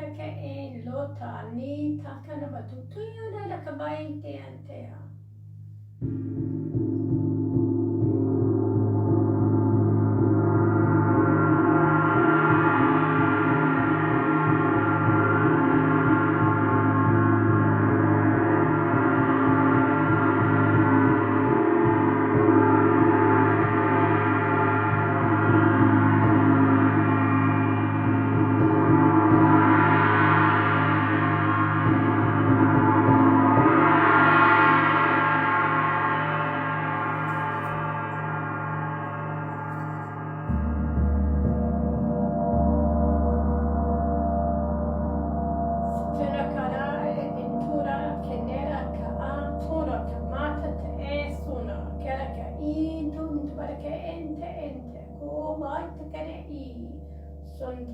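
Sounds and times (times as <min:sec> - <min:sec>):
gong ringing: 0:06.0 - 0:57.9.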